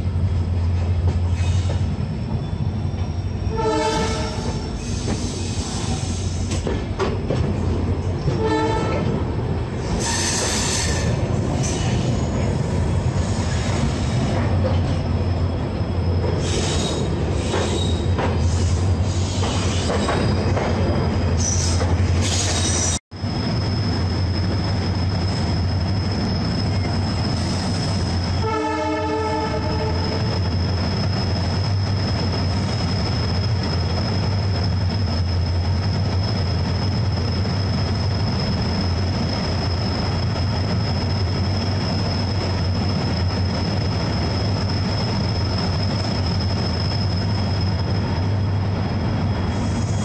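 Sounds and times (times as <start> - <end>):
train rumble with high whine: 0.0 - 50.0
train horn: 3.5 - 4.7, 8.3 - 9.1, 28.4 - 30.1.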